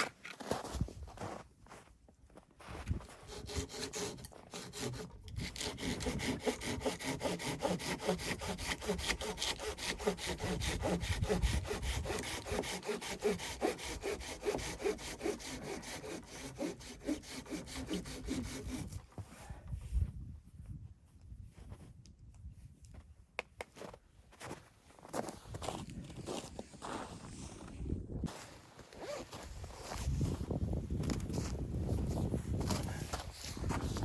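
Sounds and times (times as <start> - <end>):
hand saw cutting wood: 3.2 - 19.0.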